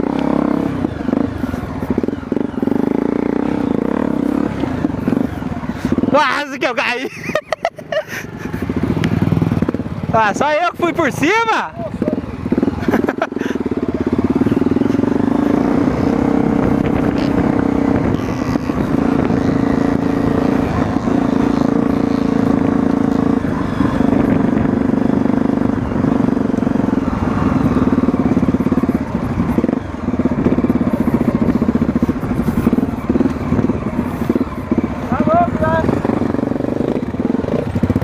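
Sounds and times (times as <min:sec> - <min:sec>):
motorcycle engine under throttle: 0:00.0 - 0:38.0.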